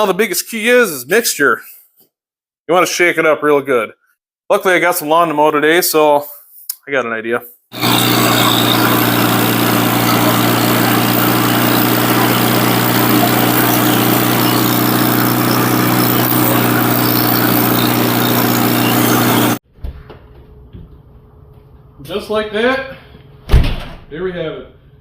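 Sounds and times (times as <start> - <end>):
lawn mower engine running: 7.8 - 19.6.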